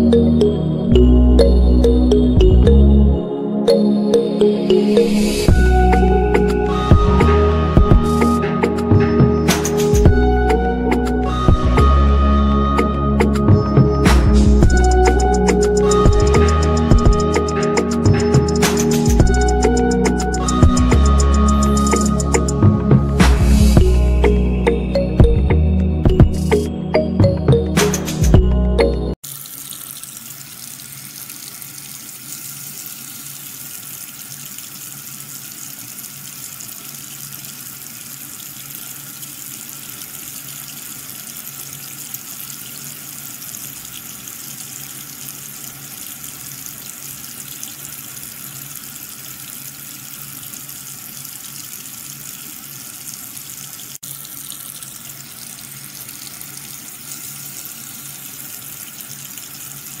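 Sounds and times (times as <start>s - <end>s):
water splashing from pump jet: 29.2s - 60.0s.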